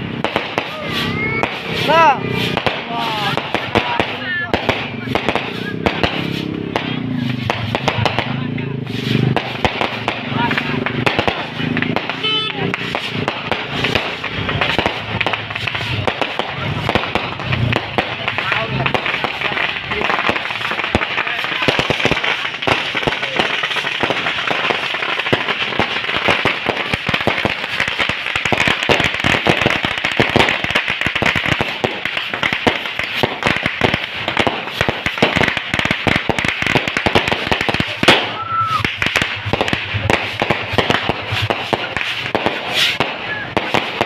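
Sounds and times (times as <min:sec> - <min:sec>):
firecrackers crackling: 0:00.0 - 0:44.0
loud firework bang: 0:00.2 - 0:44.0
firework whistle: 0:00.6 - 0:03.4, 0:12.1 - 0:16.0, 0:37.9 - 0:39.4, 0:42.5 - 0:44.0.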